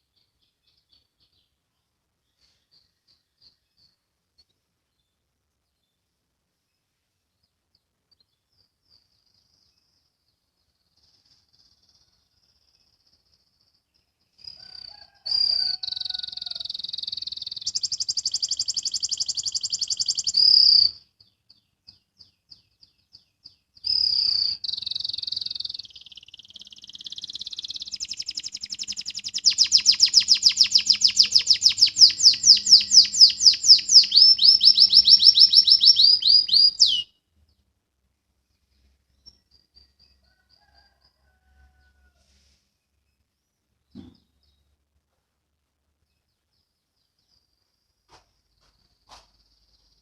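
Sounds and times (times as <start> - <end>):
canary singing: 15.1 - 21.0, 23.8 - 37.1.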